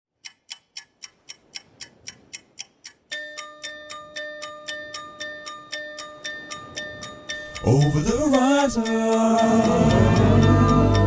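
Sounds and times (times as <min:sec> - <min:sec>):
ticking beat: 0:00.1 - 0:11.0
held bell-like tones: 0:03.2 - 0:11.0.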